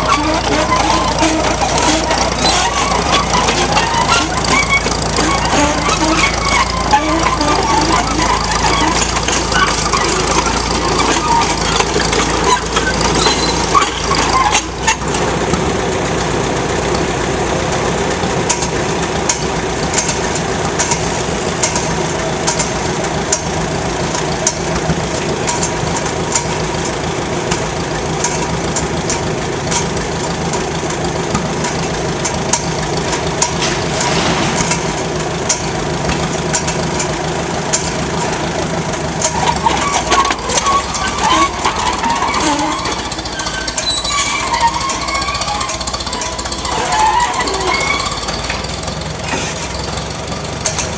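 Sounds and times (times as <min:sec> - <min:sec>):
metallic clicks and clanks: 0:00.0 - 0:15.7, 0:18.4 - 0:50.9
engine running: 0:00.0 - 0:50.9.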